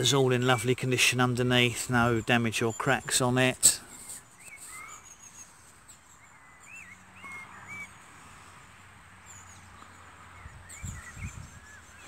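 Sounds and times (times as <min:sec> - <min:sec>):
birds chirping faintly: 0:00.0 - 0:08.6, 0:09.2 - 0:12.0.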